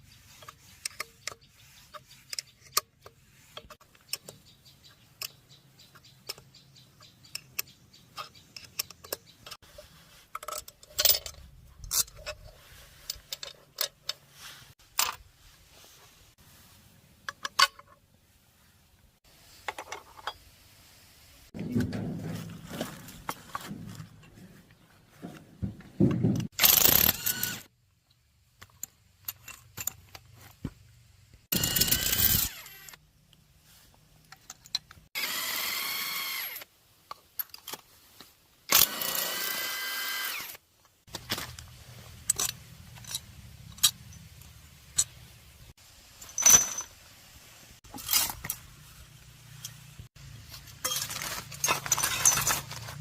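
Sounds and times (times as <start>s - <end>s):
parts clicking and clinking: 0.4s - 15.3s, 17.2s - 18.0s, 21.6s - 30.9s, 34.2s - 35.1s, 40.9s - 45.4s, 46.2s - 47.0s, 49.3s - 53.0s.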